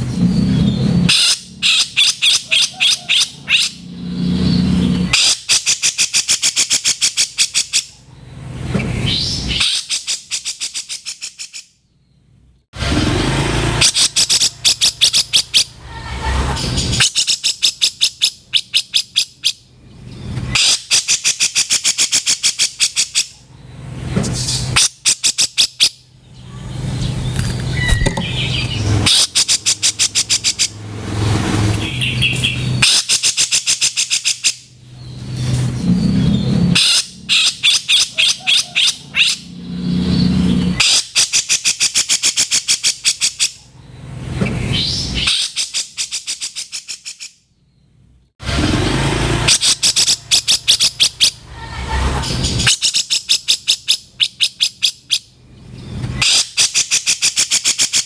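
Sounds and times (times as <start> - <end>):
bird rattling calls: 13.8 - 15.7, 27.7 - 30.8, 49.5 - 51.4.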